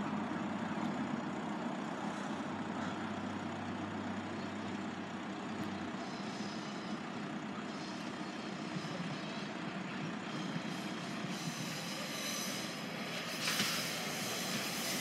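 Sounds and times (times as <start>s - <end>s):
diesel train rumble: 0.0s - 15.0s
high-pitched wheel squeal: 10.4s - 15.0s
short loud hiss: 12.2s - 15.0s.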